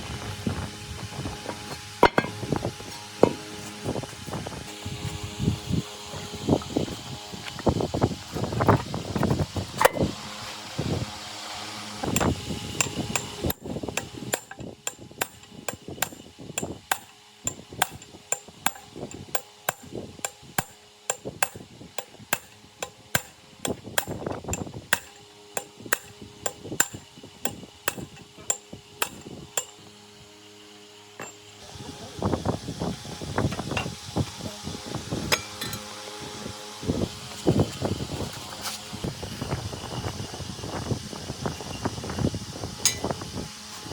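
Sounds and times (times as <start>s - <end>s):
hammer striking metal: 2.0s - 2.4s, 12.2s - 16.2s, 16.9s - 24.2s, 24.9s - 29.8s, 31.2s - 31.4s, 35.3s - 35.9s, 42.8s - 43.1s.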